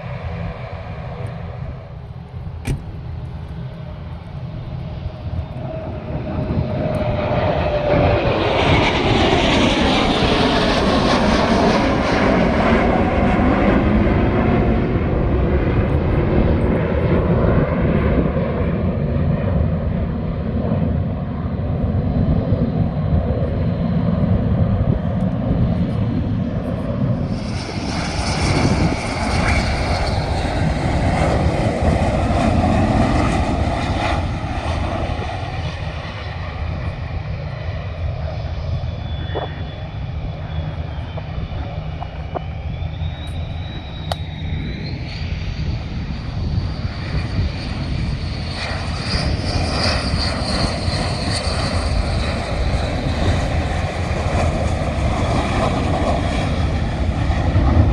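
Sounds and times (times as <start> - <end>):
aircraft engines running: 0.0 - 57.9
engine whine falling: 0.1 - 9.7, 38.7 - 48.0.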